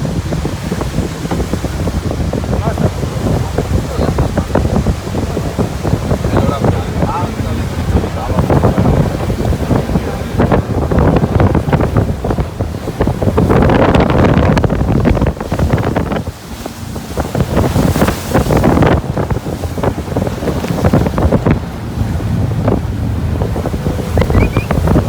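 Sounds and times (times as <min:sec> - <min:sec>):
waterfall rushing: 0:00.0 - 0:14.6, 0:19.7 - 0:25.0
wind buffeting microphone: 0:00.0 - 0:25.0.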